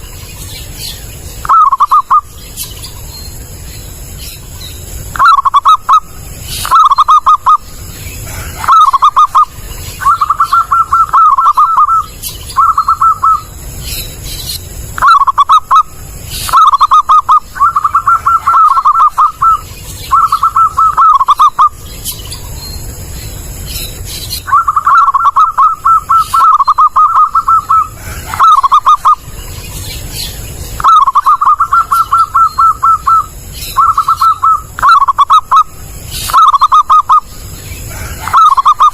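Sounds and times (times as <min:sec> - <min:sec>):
dove cooing: 0:01.4 - 0:02.3, 0:05.1 - 0:13.5, 0:15.0 - 0:21.8, 0:24.4 - 0:29.4, 0:30.8 - 0:38.9.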